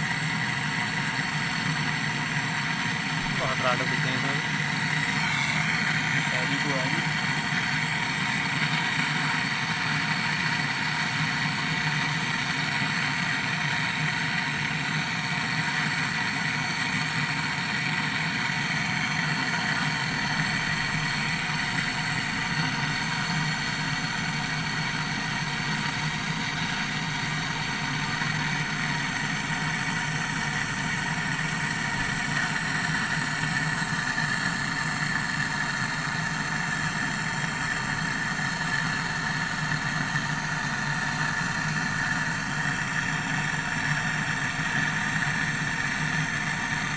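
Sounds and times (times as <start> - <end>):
air conditioner humming: 2.4 - 8.2, 19.2 - 46.9.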